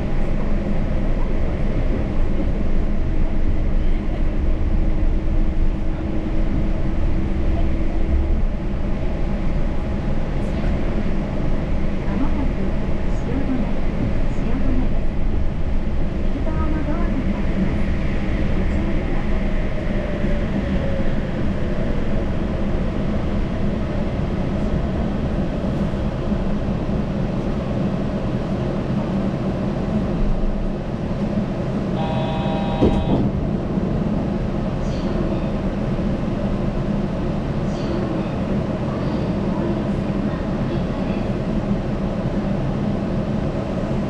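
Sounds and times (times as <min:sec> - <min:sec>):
train running: 0:00.0 - 0:44.0
short electronic tone: 0:32.0 - 0:33.2.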